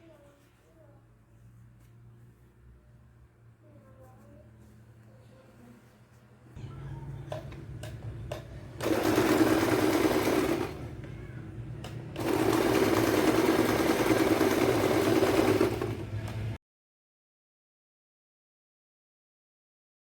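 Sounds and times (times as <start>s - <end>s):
sewing machine stitching: 8.3s - 11.0s, 11.8s - 16.6s.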